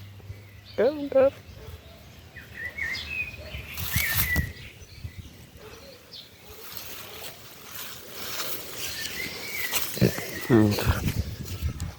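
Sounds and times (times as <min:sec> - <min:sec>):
bird high chirp: 0:00.0 - 0:07.2, 0:08.8 - 0:10.8
songbird warbling whistle: 0:02.6 - 0:04.7.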